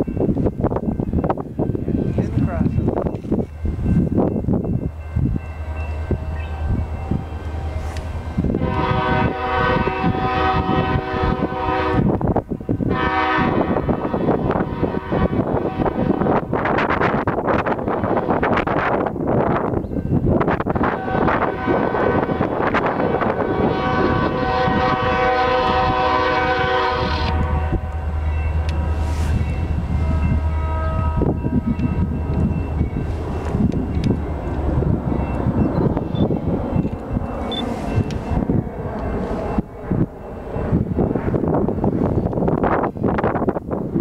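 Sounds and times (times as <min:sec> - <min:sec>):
passing train rumble: 0:00.0 - 0:44.0
locomotive air horn blasts: 0:08.5 - 0:16.6, 0:20.8 - 0:32.4.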